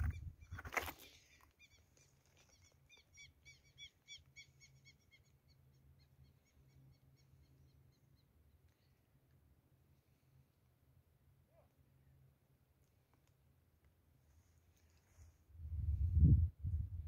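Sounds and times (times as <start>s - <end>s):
bird chirping: 1.2s - 9.0s.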